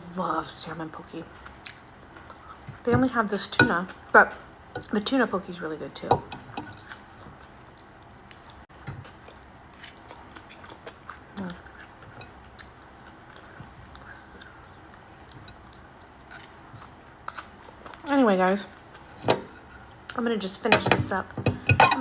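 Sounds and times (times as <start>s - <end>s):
person chewing food: 6.4s - 18.1s.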